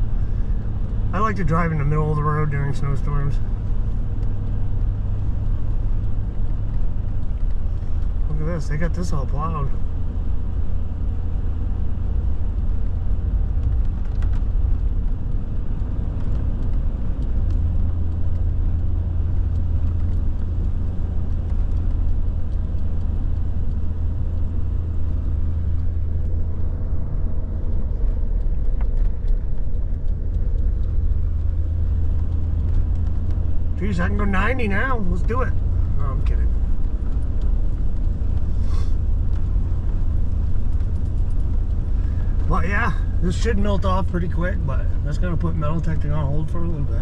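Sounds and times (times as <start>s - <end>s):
vehicle engine and tyre noise: 0.0s - 47.0s
faint clicks: 13.6s - 33.7s.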